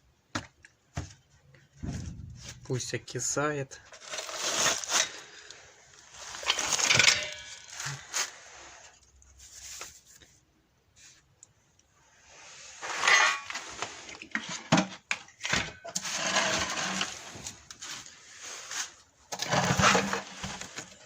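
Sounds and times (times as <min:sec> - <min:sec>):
rustling: 0:01.0 - 0:10.4
sharp knock: 0:01.8 - 0:02.7.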